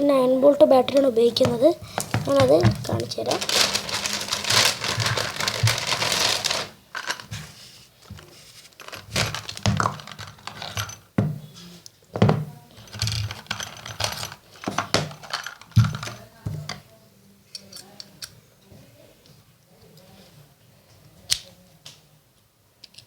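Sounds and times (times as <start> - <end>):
tools handled on hard surface: 1.4 - 11.3, 12.2 - 16.8.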